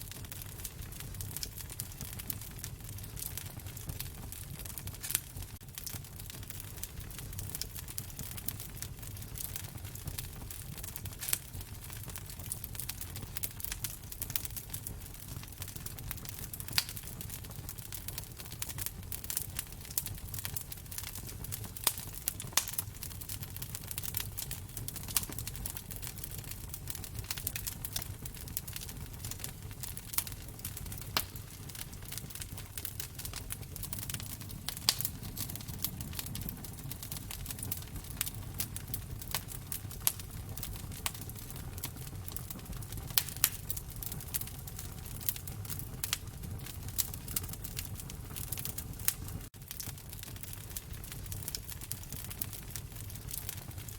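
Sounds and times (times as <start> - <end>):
fire popping: 0.0 - 53.9
wood fire crackling: 0.0 - 53.9.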